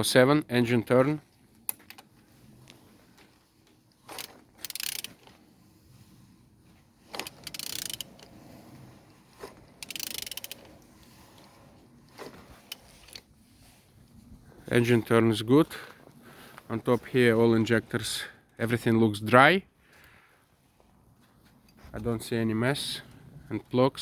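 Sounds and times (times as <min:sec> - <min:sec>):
ratchet wrench clicking: 0:04.1 - 0:05.3, 0:07.2 - 0:08.3, 0:09.8 - 0:10.8.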